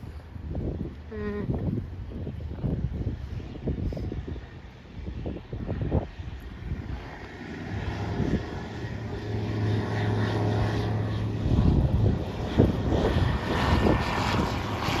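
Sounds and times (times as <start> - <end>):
aircraft engine drone: 0.0 - 15.0.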